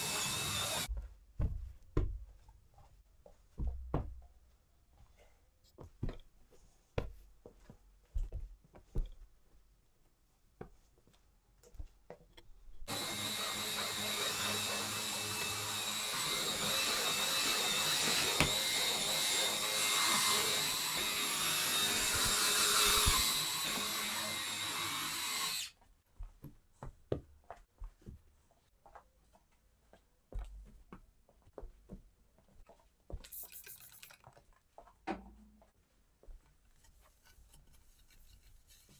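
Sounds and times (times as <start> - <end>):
small electric motor whining: 0.0 - 0.9, 12.9 - 25.7.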